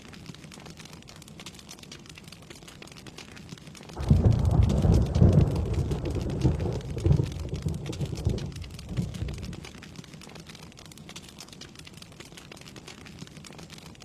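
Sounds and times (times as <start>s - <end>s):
rain pattering: 0.0s - 14.0s
thunder rumbling: 4.0s - 9.8s.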